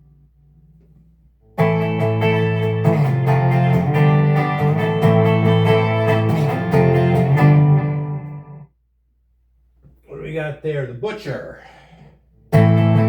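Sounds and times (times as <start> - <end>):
electric guitar strumming chords: 1.5 - 8.6, 12.5 - 13.0.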